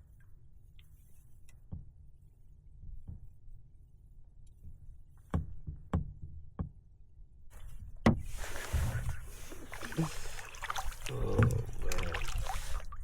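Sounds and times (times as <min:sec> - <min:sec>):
splashing rushing water: 0:08.3 - 0:13.0.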